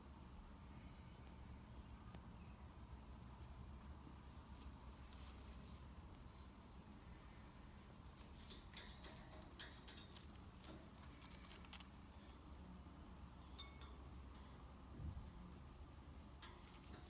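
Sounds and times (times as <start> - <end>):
parrot beak and claws clicking: 8.4 - 12.3.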